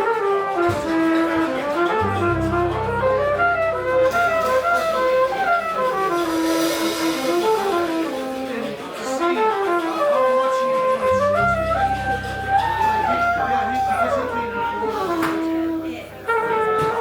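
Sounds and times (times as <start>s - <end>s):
jazz band playing: 0.0s - 17.0s
wind instrument melody: 0.0s - 17.0s
low bass note: 2.0s - 8.1s, 11.2s - 16.6s.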